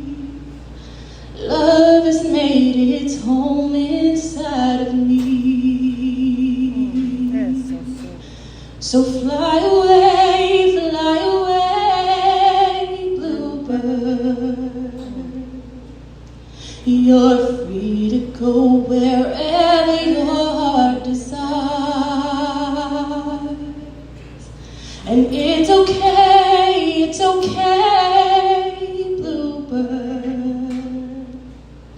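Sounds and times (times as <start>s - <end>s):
person singing unaccompanied: 25.0s - 31.3s.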